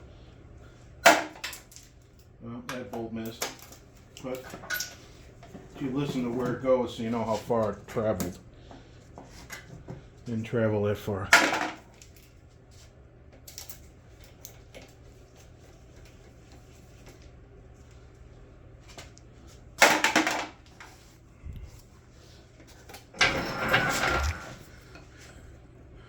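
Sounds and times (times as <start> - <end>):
bolts clattering on metal: 23.2 - 24.7.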